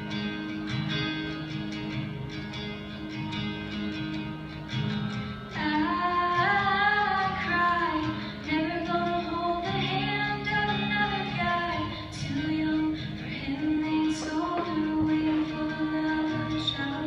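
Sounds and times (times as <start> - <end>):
strummed acoustic guitar: 0.0 - 17.0
girl singing: 5.6 - 17.0.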